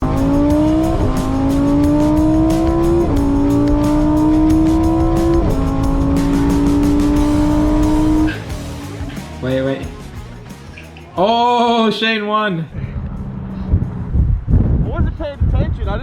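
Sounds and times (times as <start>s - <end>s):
car engine accelerating hard: 0.0s - 10.9s, 12.7s - 15.0s.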